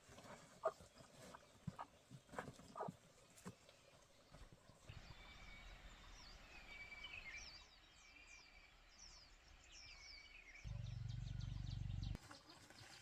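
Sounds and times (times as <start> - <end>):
small birds chirping: 0.2 - 13.0
low steady rumble: 10.7 - 12.2.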